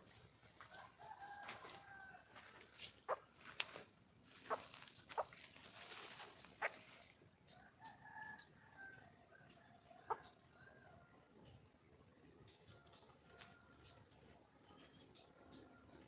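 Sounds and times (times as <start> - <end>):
hen clucking: 3.0 - 3.4, 4.4 - 5.4, 6.5 - 7.0, 10.0 - 10.4.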